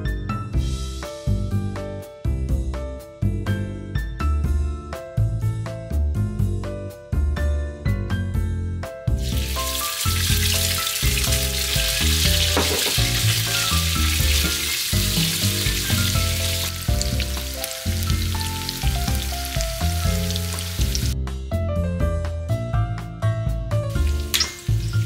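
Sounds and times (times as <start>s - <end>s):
chicken sizzling in oil: 9.2s - 21.2s, 23.9s - 25.0s.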